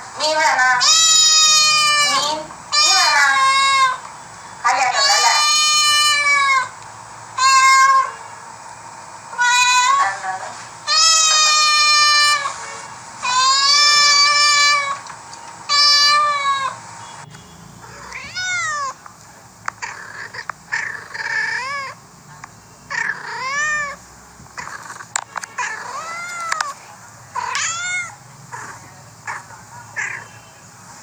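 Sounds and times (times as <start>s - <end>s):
cats meowing: 0.2s - 4.1s, 4.7s - 6.8s, 7.4s - 8.2s, 9.3s - 12.6s, 13.2s - 15.1s, 15.7s - 16.8s, 17.8s - 19.0s, 19.8s - 22.0s, 22.9s - 24.0s, 24.6s - 30.3s
faint clicks: 26.3s - 26.8s.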